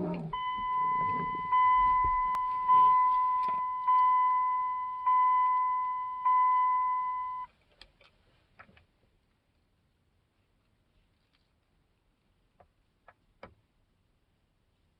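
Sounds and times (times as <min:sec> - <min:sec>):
vehicle warning chime dinging: 0:00.0 - 0:07.5.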